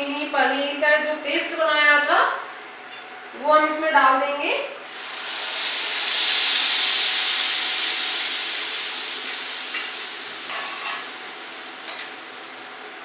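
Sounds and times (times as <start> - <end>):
hot ghee sizzling: 4.8 - 13.0.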